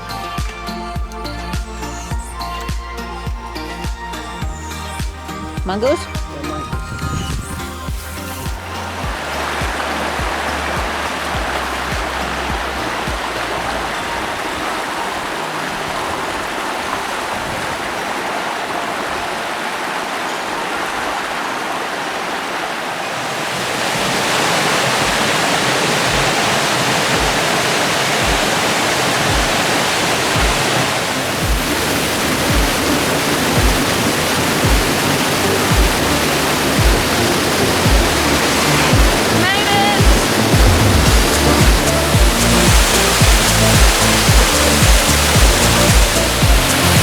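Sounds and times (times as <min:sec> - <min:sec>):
background music with low beat: 0:00.0 - 0:14.7, 0:28.2 - 0:28.6, 0:29.3 - 0:29.7, 0:30.4 - 0:30.7, 0:31.4 - 0:47.0
rushing water: 0:00.0 - 0:47.0.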